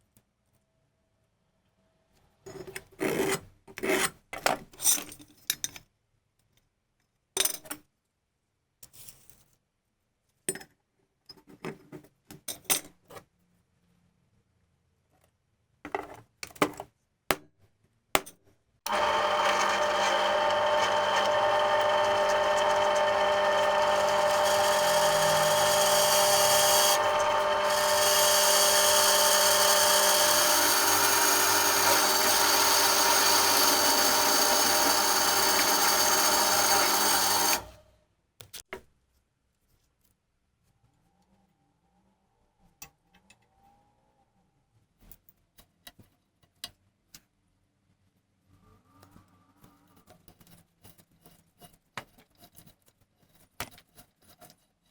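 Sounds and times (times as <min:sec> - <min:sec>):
electric power tool running: 0:18.9 - 0:37.8.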